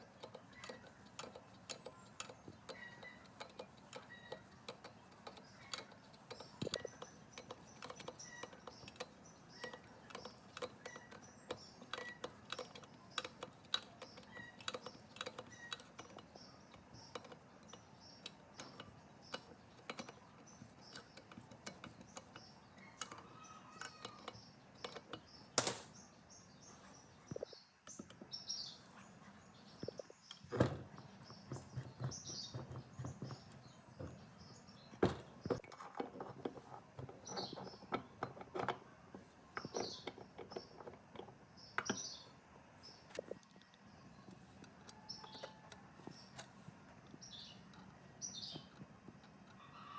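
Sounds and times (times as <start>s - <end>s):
small clicks and taps: 0.0s - 25.9s, 29.7s - 34.3s, 42.9s - 49.6s
birds chirping: 0.0s - 49.9s.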